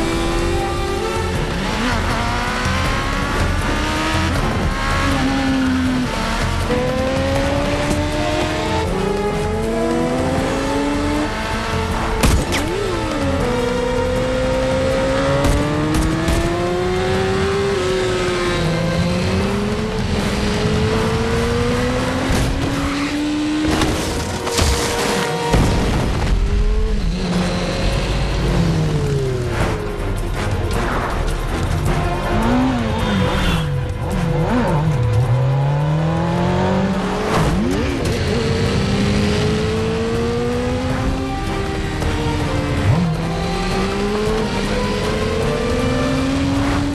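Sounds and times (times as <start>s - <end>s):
motorcycle engines at high revs: 0.0s - 25.6s, 26.7s - 29.8s, 32.2s - 46.9s
film music: 0.0s - 46.9s.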